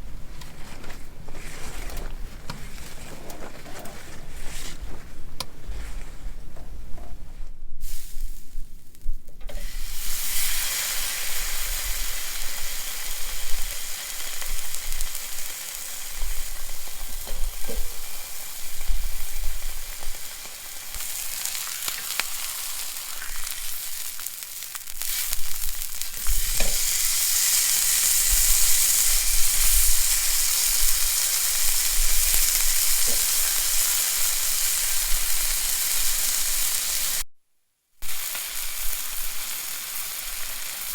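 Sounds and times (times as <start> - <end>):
food sizzling in a hot pan: 7.8 - 37.2, 38.0 - 40.9.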